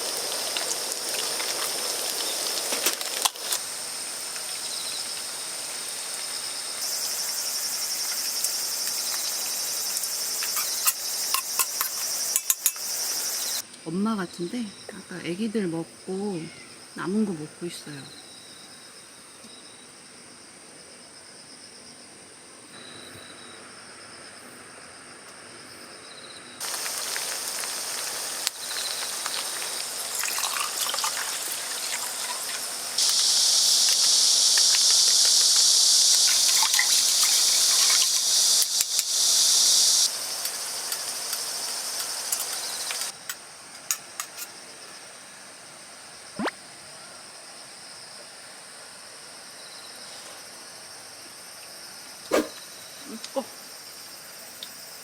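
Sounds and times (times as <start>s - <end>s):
water running and splashing: 0.0s - 13.6s, 26.6s - 43.2s
insects chirping: 0.0s - 55.0s.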